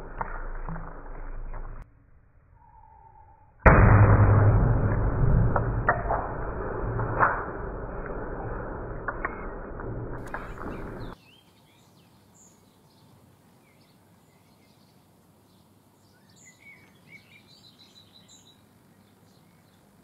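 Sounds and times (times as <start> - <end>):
songbirds chirping: 10.2 - 20.0.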